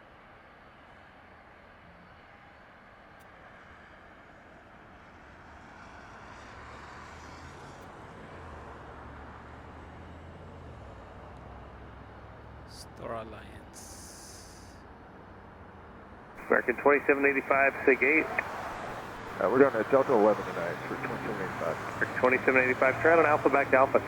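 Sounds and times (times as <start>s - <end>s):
distant jet engines rumbling: 16.4s - 24.0s.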